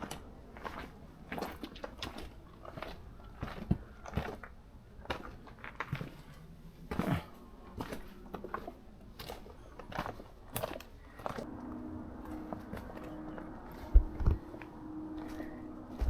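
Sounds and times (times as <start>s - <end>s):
footsteps on rocky trail: 0.0s - 16.0s.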